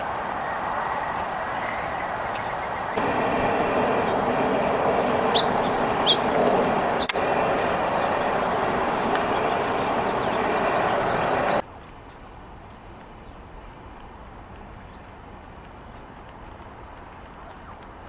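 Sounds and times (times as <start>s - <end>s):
high bird chirps: 3.0s - 11.6s
steady rushing noise: 3.0s - 11.6s.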